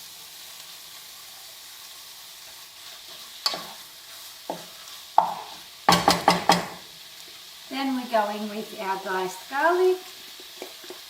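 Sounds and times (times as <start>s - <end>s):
food sizzling in a frying pan: 0.0s - 11.0s
utensil knocking against a pan: 5.2s - 6.8s.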